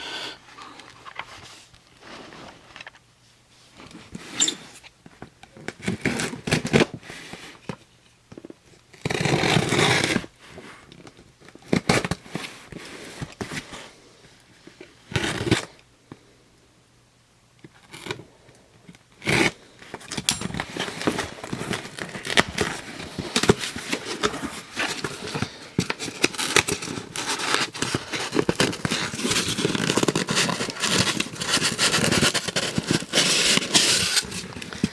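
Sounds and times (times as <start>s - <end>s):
packaging rustling: 19.9s - 34.9s
plastic toy packaging crinkling: 20.6s - 34.9s.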